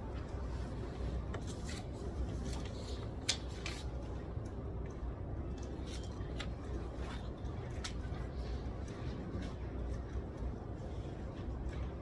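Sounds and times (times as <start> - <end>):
low room hum: 0.0 - 12.0
paper rustling: 0.5 - 4.0.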